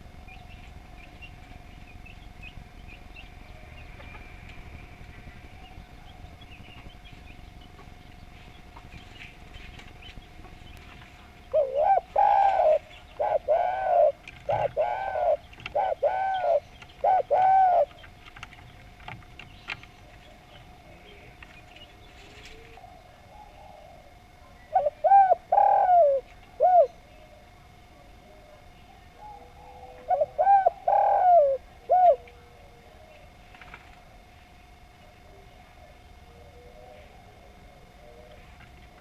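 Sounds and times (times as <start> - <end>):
dove cooing: 0.0 - 39.0.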